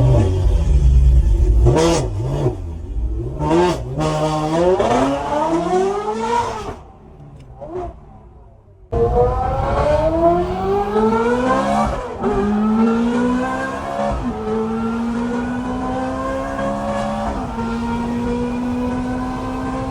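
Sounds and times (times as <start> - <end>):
sports car engine accelerating: 8.9 - 19.9.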